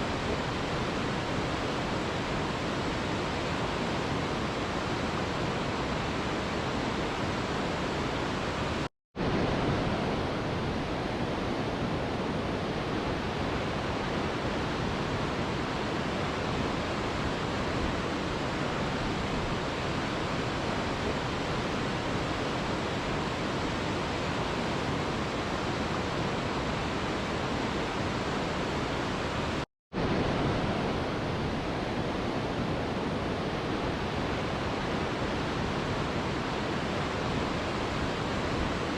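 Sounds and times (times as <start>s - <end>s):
river rushing: 0.0s - 38.9s.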